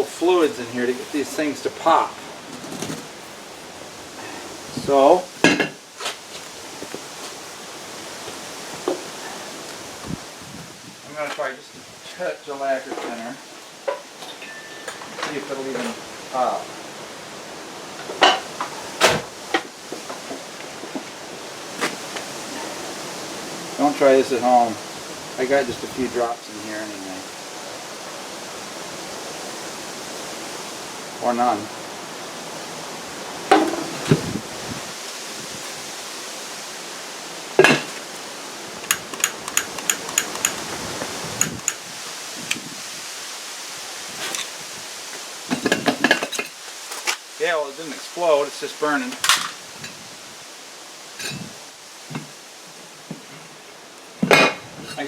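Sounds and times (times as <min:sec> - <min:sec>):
steady hiss: 0:00.0 - 0:55.0
sharp clicks and knocks: 0:38.8 - 0:40.8, 0:41.4 - 0:41.8.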